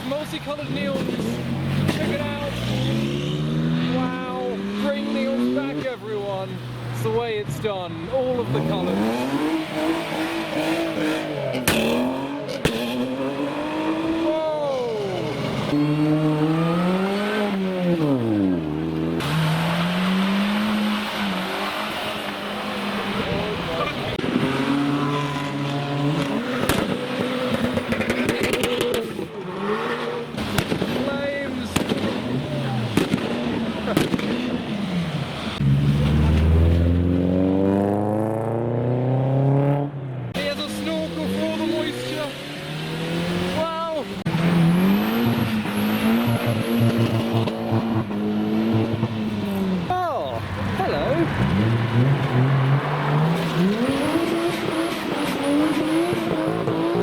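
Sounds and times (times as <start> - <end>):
car engine revving: 0.0 - 57.0
exhaust popping and crackling: 7.0 - 14.4, 15.0 - 29.6, 30.2 - 37.0, 43.0 - 57.0.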